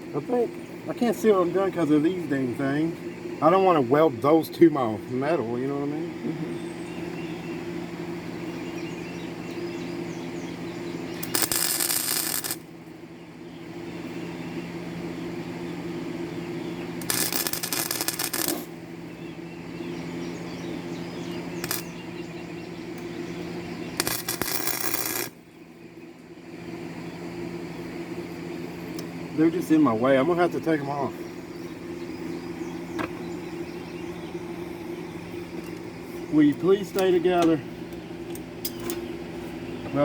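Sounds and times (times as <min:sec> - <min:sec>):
welder steady hum: 0:00.0 - 0:40.0
welding arc crackle: 0:11.1 - 0:12.8, 0:17.0 - 0:18.8, 0:21.5 - 0:22.0, 0:23.9 - 0:25.4.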